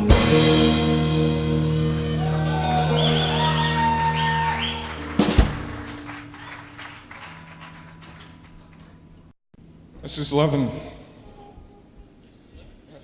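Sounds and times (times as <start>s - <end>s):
rock band chord ringing: 0.0s - 7.5s.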